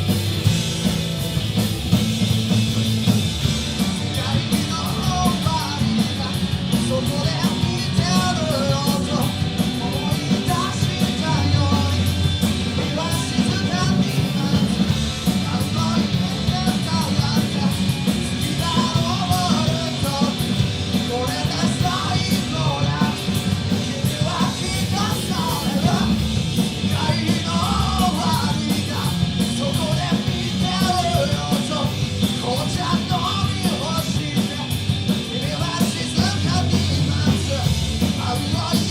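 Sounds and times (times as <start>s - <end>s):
punk rock band playing: 0.0s - 38.9s
person shouting singing: 21.1s - 26.2s, 26.9s - 38.9s.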